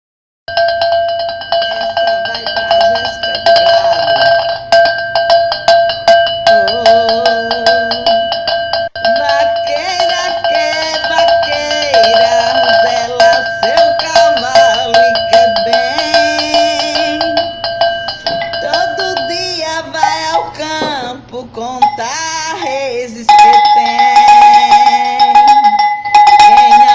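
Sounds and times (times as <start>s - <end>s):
cowbell-like ringing tone: 0.5s - 21.0s, 21.8s - 22.2s, 23.3s - 26.9s
upbeat music with percussion: 0.5s - 21.1s, 23.3s - 26.9s
bending melody: 0.5s - 22.2s, 23.3s - 26.9s.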